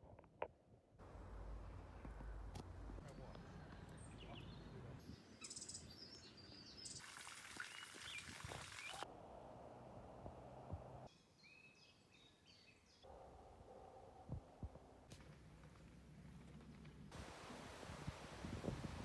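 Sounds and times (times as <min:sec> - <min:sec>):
bird chirps and calls: 0:03.0 - 0:07.0.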